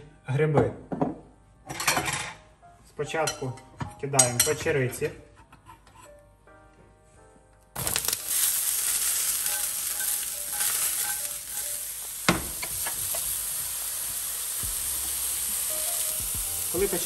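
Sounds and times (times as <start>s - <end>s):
mushrooms sizzling in hot oil: 7.8s - 17.0s
pan knock: 12.3s - 13.0s.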